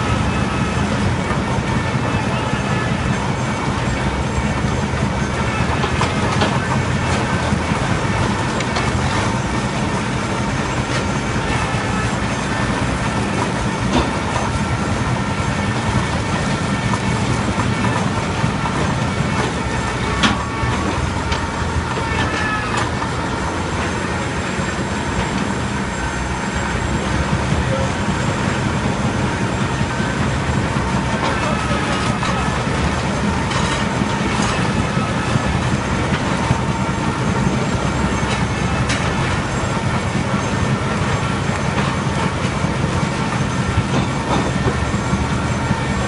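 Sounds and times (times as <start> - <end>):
machine low drone: 0.0 - 46.0
high ringing squealing tones: 14.4 - 46.0.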